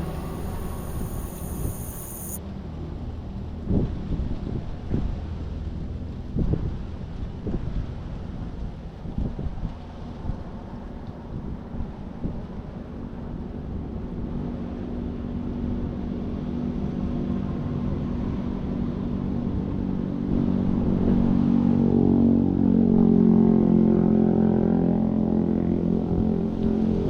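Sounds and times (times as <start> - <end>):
quadcopter propellers buzzing: 0.0 - 2.4.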